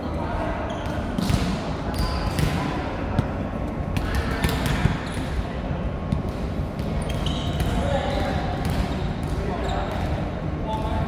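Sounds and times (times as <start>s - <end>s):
ball bouncing on hard court: 0.9s - 3.4s
shoe squeaks: 7.0s - 7.7s.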